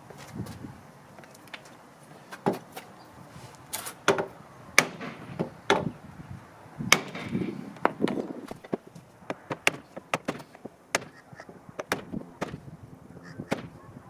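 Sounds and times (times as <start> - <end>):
sharp knocks on car door: 11.8 - 12.6.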